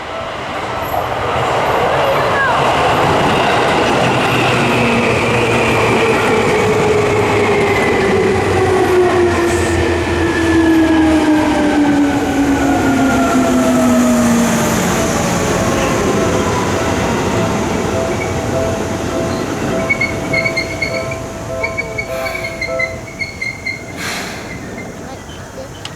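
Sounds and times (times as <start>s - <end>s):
electric train rail rumble: 0.0s - 25.9s
train motor whine: 12.0s - 25.9s.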